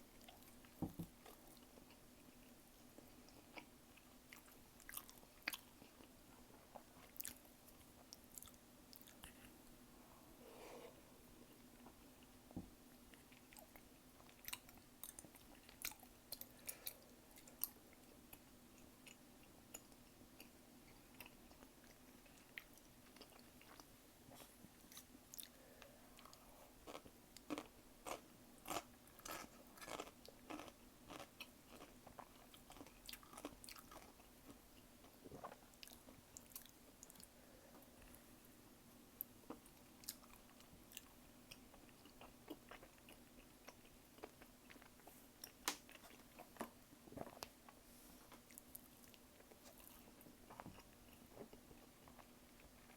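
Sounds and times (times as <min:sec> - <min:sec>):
faint steady hum: 0:00.0 - 0:52.9
chewing and biting food: 0:26.2 - 0:34.6.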